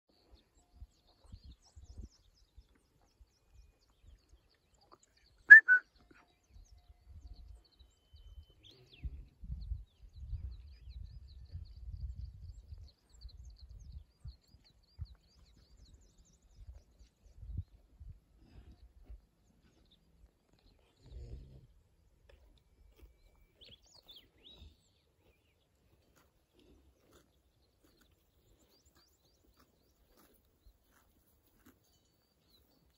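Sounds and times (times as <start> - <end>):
bird short sharp calls: 5.5 - 5.9.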